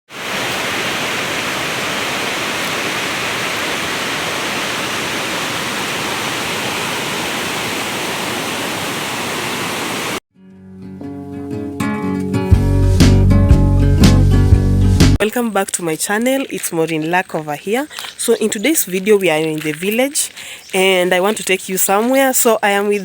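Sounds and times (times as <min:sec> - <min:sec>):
waterfall rushing: 0:00.1 - 0:10.2.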